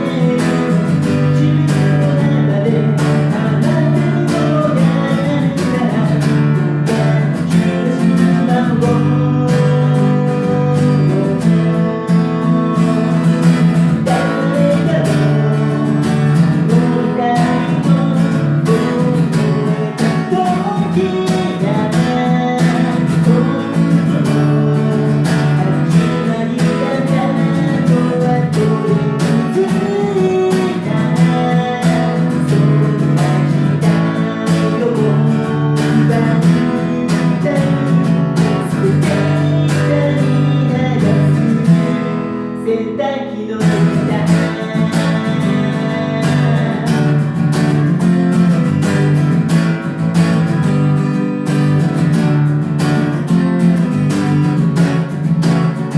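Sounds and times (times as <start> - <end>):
acoustic guitar strumming: 0.0 - 55.9.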